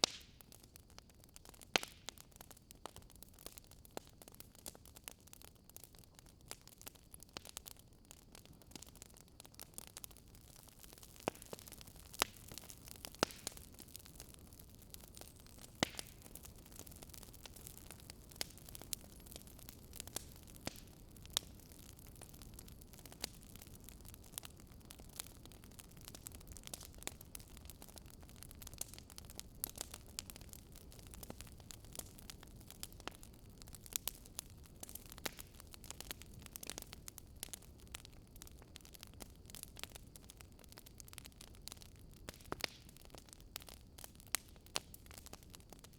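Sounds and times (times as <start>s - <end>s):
wood fire crackling: 0.0s - 45.9s
low hiss of flames: 9.6s - 41.0s.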